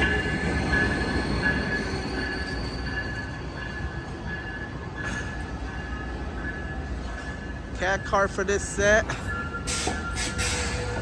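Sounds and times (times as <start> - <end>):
high thin train squeal: 0.0 - 4.1, 9.2 - 11.0
train cars rumbling: 0.0 - 11.0.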